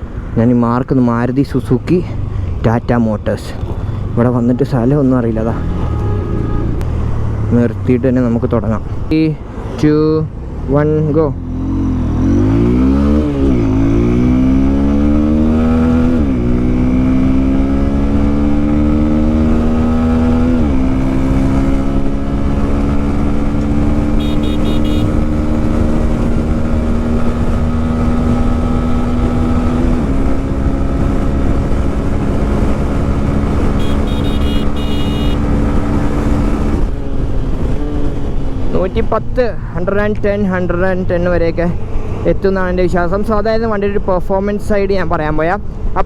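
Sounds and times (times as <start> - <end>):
motorcycle engine accelerating: 11.4 - 38.7.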